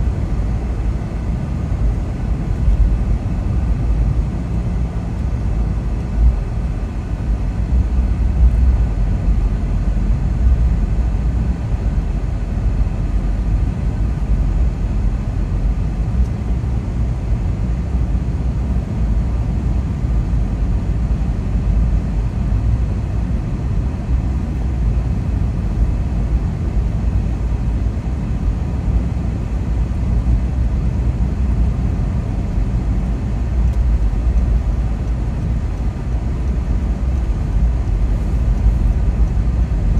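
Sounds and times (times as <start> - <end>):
car driving rumble: 18.6 - 39.9.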